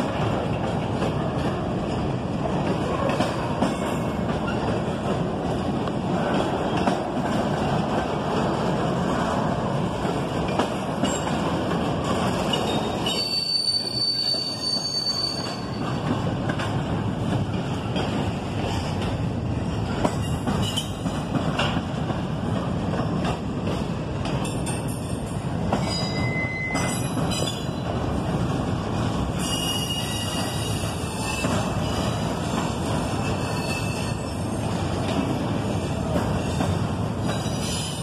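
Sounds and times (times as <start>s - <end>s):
steel wheels rumbling on rail: 0.0s - 38.0s
high-pitched wheel squeal: 13.1s - 15.8s, 25.9s - 27.6s.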